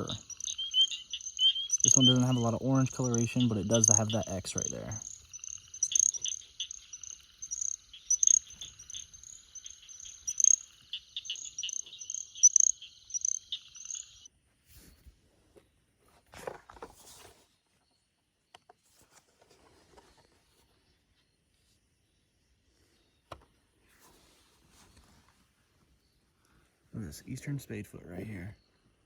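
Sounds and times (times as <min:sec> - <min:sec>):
spring peepers peeping: 0:00.0 - 0:14.3
steady high trill: 0:00.0 - 0:14.3.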